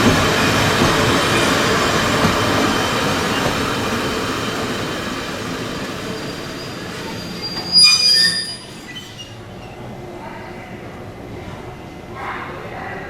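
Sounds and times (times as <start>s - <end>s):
train rail and wheel noise: 0.0s - 13.0s.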